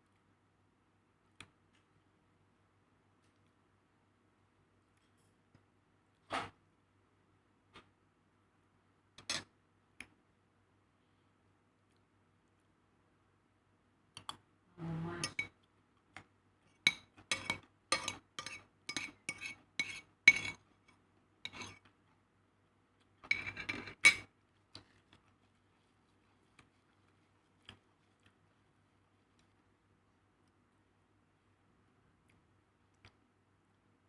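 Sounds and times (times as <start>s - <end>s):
cutlery clinking on plate: 16.9s - 20.6s
cutlery scraping: 16.9s - 20.6s, 21.4s - 21.9s, 23.2s - 24.3s.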